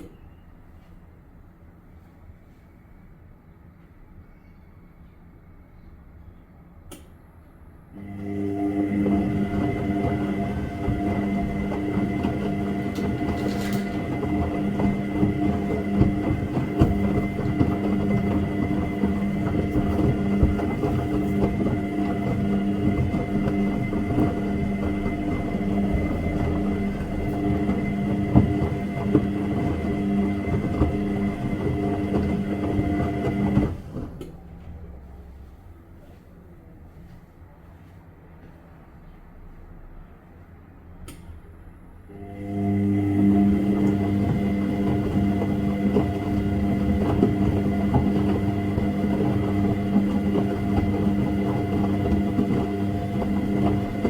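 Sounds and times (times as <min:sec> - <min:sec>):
washing machine motor hum: 0:07.8 - 0:37.0, 0:41.1 - 0:54.0
washing machine knocks: 0:10.9 - 0:32.1.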